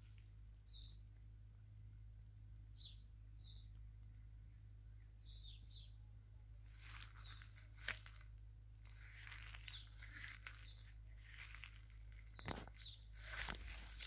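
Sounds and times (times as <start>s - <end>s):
footsteps through dry leaves: 6.6s - 14.0s.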